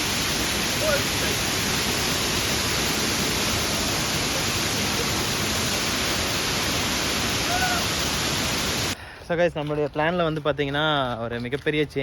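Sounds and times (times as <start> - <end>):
waterfall rushing: 0.0 - 9.0.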